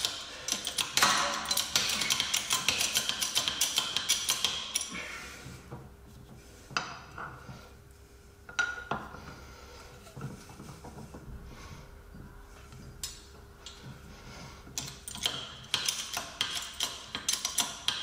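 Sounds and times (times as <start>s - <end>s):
hand ratchet clicking: 0.0s - 5.0s, 14.8s - 18.0s.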